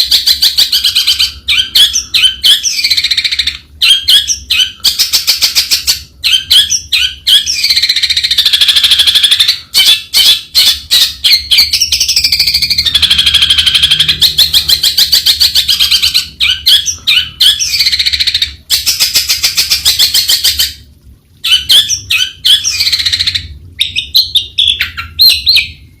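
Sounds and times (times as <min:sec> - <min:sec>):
bird chattering notes: 0:00.4 - 0:20.6.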